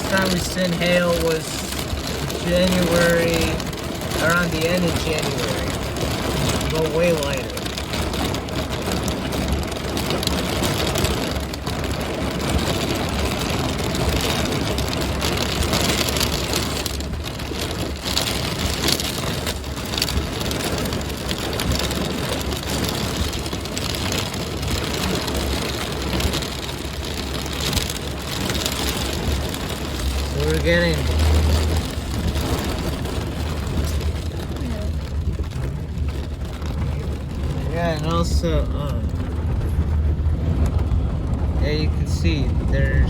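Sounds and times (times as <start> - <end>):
heavy rain and hail pelting: 0.0 - 43.0
low rumble: 0.0 - 43.0.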